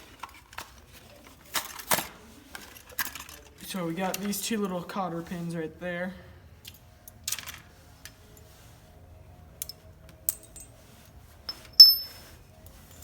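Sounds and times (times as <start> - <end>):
metal parts clinking: 0.2 - 4.4, 6.6 - 7.7, 9.6 - 10.8, 11.5 - 12.2
bright ringing metal clink: 11.5 - 12.3.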